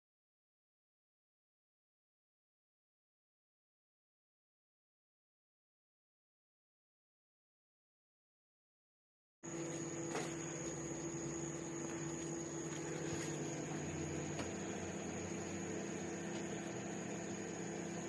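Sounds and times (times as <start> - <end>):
microwave oven humming: 9.4 - 18.0
high whine: 9.5 - 18.0.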